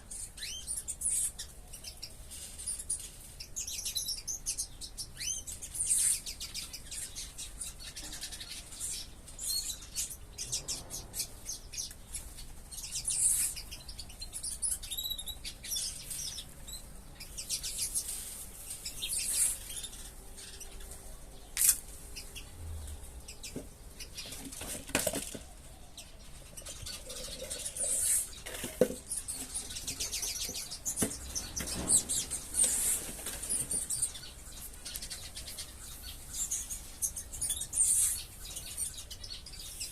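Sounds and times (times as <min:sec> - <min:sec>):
caged birds chirping: 0:00.0 - 0:39.9
wings fluttering: 0:26.6 - 0:35.7.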